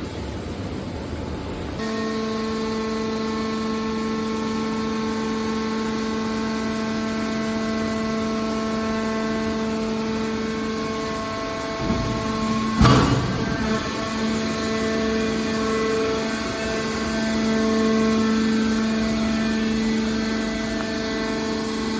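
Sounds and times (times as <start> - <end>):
hydraulic power unit hum: 0.0 - 21.9
rumbling baler machine: 1.8 - 21.9.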